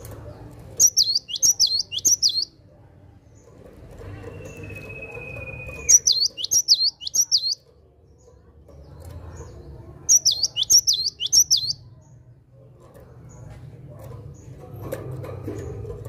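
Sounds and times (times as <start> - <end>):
bird singing sharp notes: 0.8 - 2.5, 4.3 - 7.6, 10.1 - 11.9.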